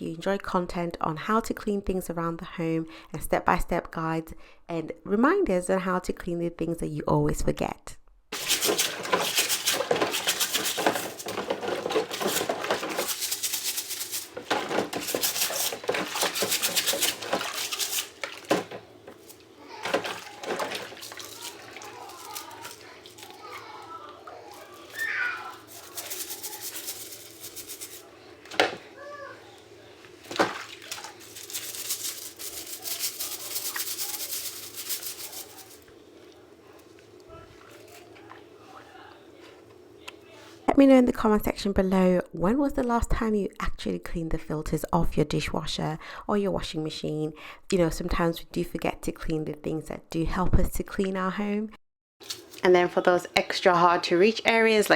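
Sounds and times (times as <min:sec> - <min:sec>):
brush scrubbing a filter: 0:08.3 - 0:28.5, 0:30.1 - 0:35.9.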